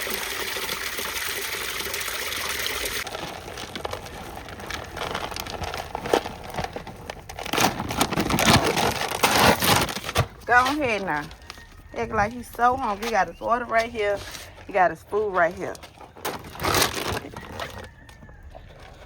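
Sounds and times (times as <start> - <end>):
tap water running into a bowl: 0.0 - 3.1
food bag rustling: 3.0 - 19.0.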